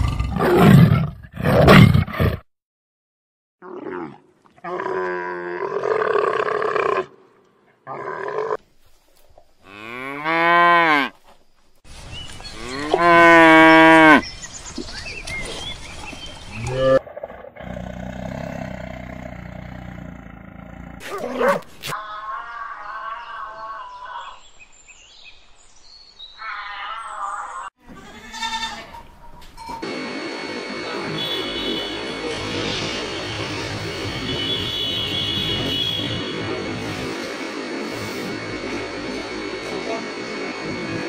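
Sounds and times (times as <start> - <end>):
cows mooing: 9.7 - 11.1
tiger growling: 16.6 - 21.6.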